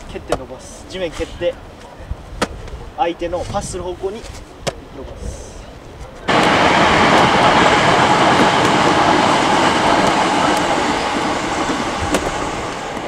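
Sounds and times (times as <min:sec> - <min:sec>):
train rumbling and rattling: 0:05.0 - 0:13.0.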